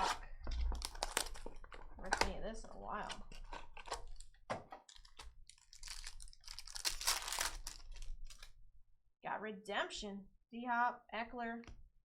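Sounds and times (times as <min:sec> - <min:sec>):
packaging ripping: 0:00.0 - 0:02.3, 0:04.9 - 0:08.5
wrapper crinkling: 0:00.0 - 0:08.5.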